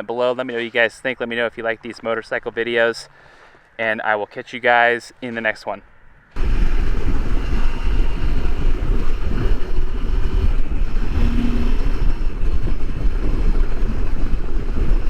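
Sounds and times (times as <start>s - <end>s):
wind buffeting microphone: 6.0s - 15.0s.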